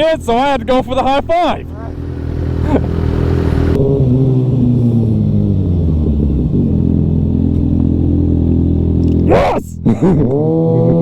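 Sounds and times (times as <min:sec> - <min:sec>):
motorcycle engine running: 0:01.5 - 0:09.3.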